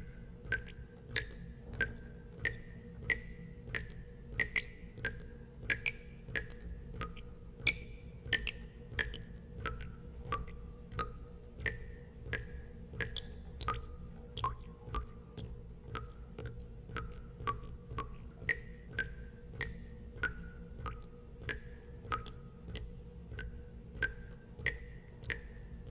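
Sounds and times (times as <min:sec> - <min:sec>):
steady low hum: 0:00.0 - 0:25.9
water drops plinking into water: 0:00.0 - 0:25.9.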